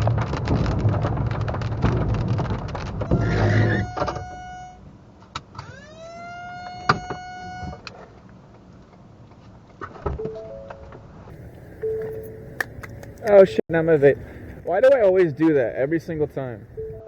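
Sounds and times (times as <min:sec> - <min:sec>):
clicks: 0:11.3 - 0:15.7
short beeps: 0:11.7 - 0:12.6, 0:16.7 - 0:17.0.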